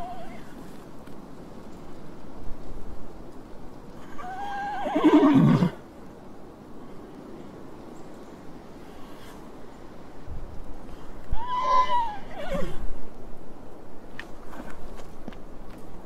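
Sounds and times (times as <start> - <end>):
horse whinnying: 0.0 - 0.5, 4.0 - 5.8, 11.3 - 12.9
low background noise: 0.0 - 16.0.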